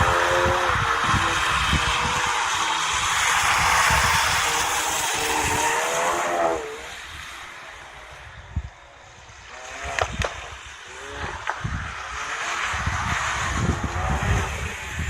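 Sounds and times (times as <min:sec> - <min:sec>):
exhaust cracks: 0:09.5 - 0:15.0.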